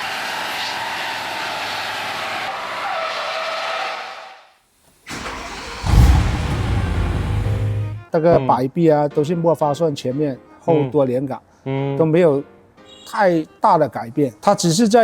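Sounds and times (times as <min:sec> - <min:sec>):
car engine running: 0:05.1 - 0:08.0
tyre and road noise: 0:05.1 - 0:08.0.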